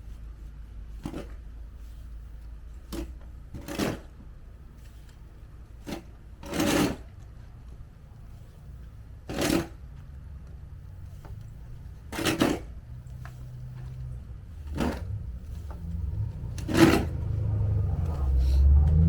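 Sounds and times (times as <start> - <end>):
low rumble: 12.9 - 19.0.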